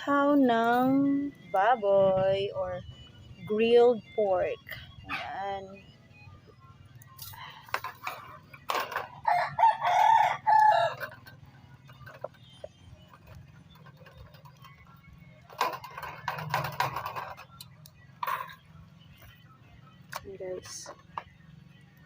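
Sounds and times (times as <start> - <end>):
rooster crowing: 8.9 - 11.2.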